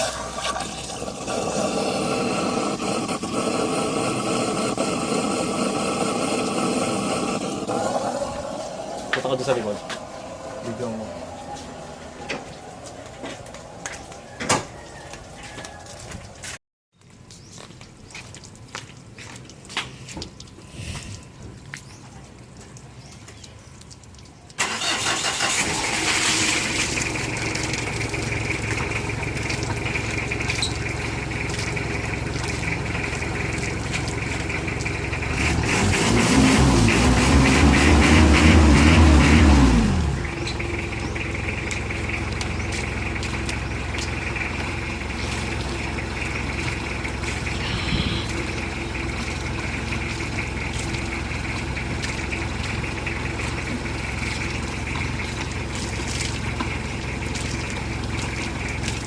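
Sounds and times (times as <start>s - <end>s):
car engine starting and idling: 0.0s - 14.8s, 24.6s - 59.0s
engine revving: 1.1s - 13.6s, 24.6s - 45.5s.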